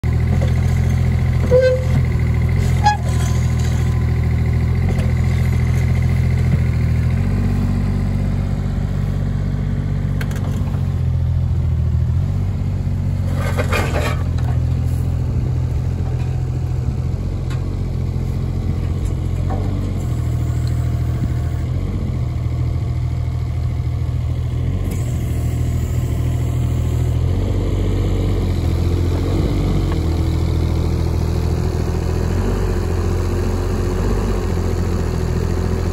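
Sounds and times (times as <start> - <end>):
excavator engine running: 0.0 - 35.9.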